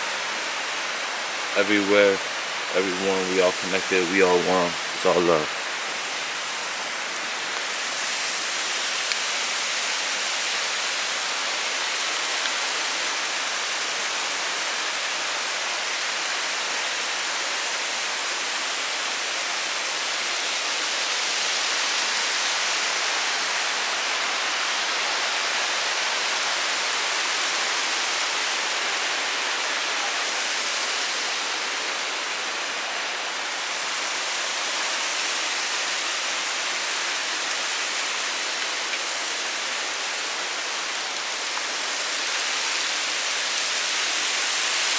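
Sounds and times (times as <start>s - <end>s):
rushing water: 0.0s - 44.9s.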